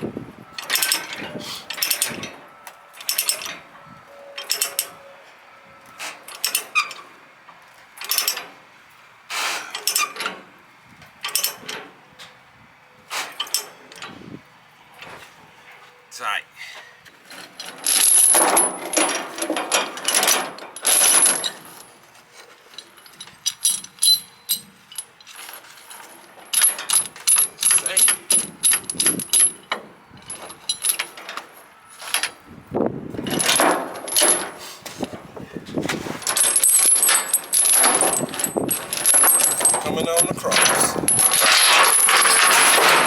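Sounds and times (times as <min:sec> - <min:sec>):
chain clinking and rattling: 0:03.0 - 0:03.6, 0:17.3 - 0:32.4, 0:33.2 - 0:35.2, 0:36.0 - 0:43.0.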